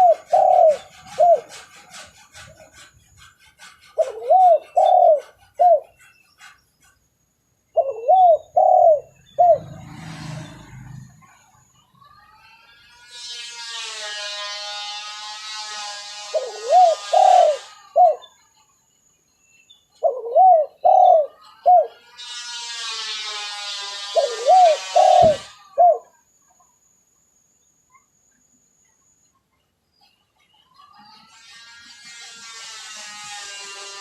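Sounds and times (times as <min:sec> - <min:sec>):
dove cooing: 0:00.0 - 0:01.9, 0:04.0 - 0:05.9, 0:07.8 - 0:10.1, 0:16.3 - 0:18.3, 0:20.0 - 0:22.0, 0:24.1 - 0:26.2.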